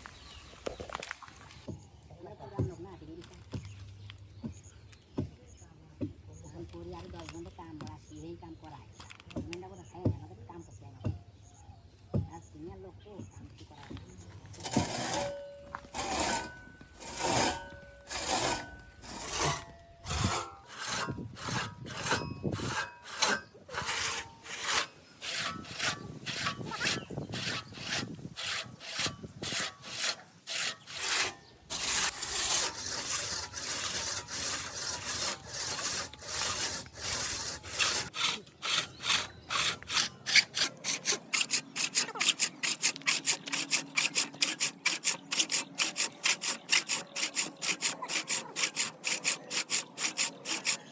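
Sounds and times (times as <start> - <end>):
hand tool sawing wood: 14.5 - 50.9.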